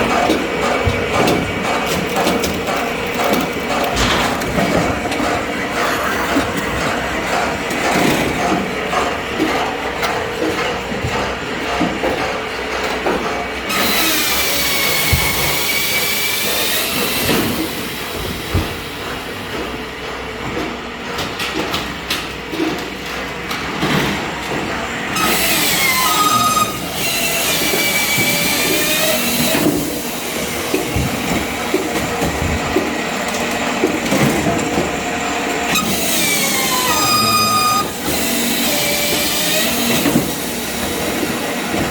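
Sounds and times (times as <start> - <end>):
machine running: 0.0 - 20.2, 24.8 - 41.9
saw blade whining through wood: 25.2 - 31.0, 35.7 - 41.8.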